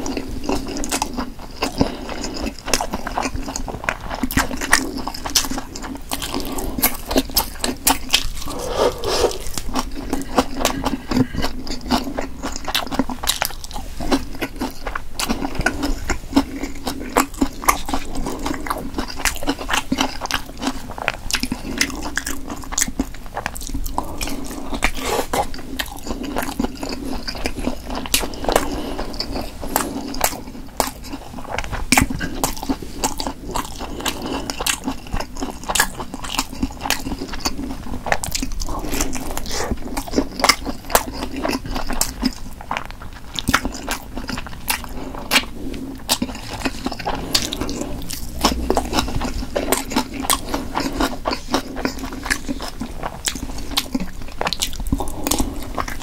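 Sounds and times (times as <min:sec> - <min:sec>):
chewing and biting: 0:00.0 - 0:56.0
wet mouth clicks: 0:07.9 - 0:10.9.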